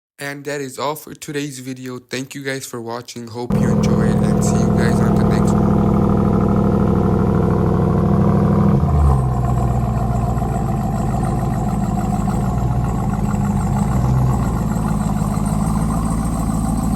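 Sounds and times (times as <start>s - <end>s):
engine revving then idling: 3.5s - 16.9s.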